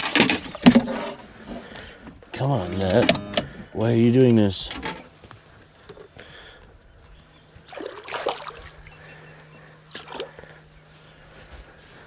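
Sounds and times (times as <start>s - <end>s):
steady low hum: 0.0s - 12.0s
water splashing and dribbling: 7.6s - 9.1s, 9.9s - 10.5s.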